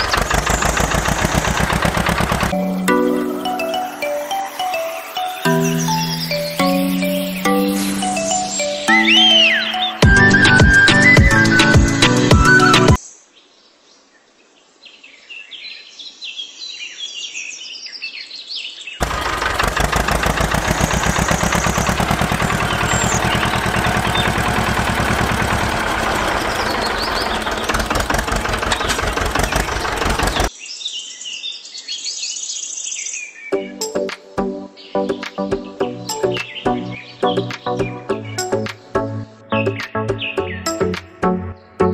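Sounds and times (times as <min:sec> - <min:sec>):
engine running loudly: 0:00.0 - 0:02.6, 0:19.0 - 0:30.5
birds chirping: 0:00.0 - 0:14.3, 0:14.9 - 0:41.9.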